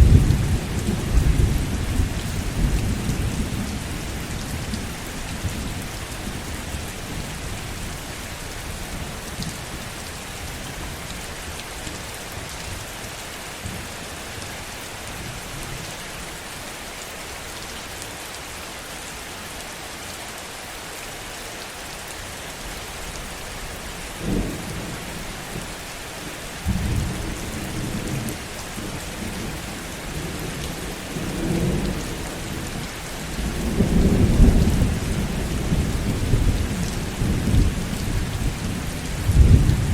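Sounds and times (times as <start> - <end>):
thunder rumbling: 0.0 - 4.7, 33.4 - 39.9
heavy rain: 0.0 - 39.9.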